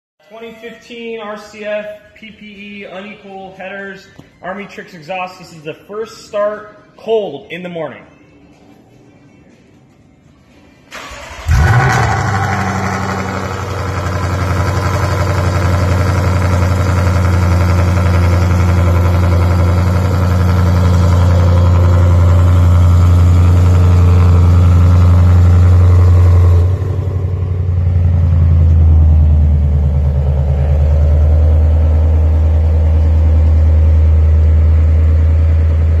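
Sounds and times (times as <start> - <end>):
car engine starting and idling: 10.9 - 36.0.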